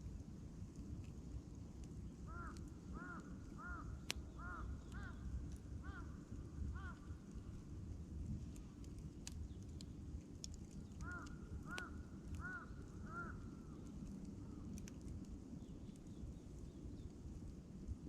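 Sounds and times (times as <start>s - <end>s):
campfire crackling and popping: 0.0s - 18.0s
low fire rumble: 0.0s - 18.0s
crow cawing: 2.3s - 5.2s, 5.8s - 7.1s, 11.0s - 13.5s.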